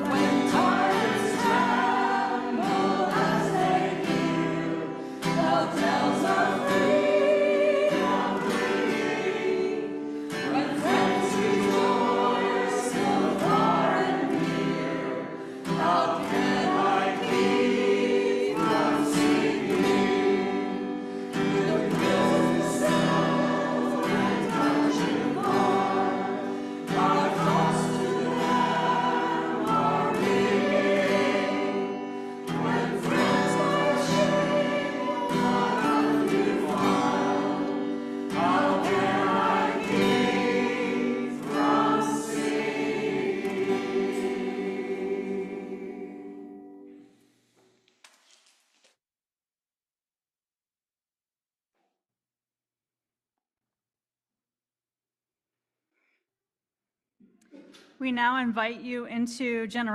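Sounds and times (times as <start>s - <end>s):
choir singing a hymn: 0.0s - 47.0s.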